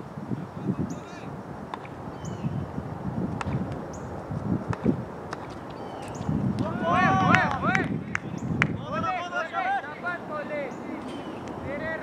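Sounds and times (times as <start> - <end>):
bird chirping: 2.1 - 2.7, 5.5 - 6.5, 8.2 - 8.6, 10.6 - 11.6.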